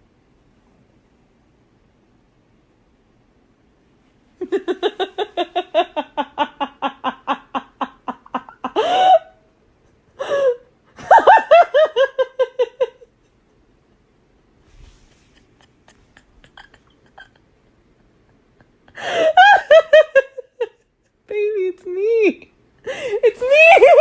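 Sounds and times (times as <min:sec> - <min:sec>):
person laughing hard: 0:04.4 - 0:09.4, 0:10.2 - 0:13.1, 0:15.4 - 0:20.8.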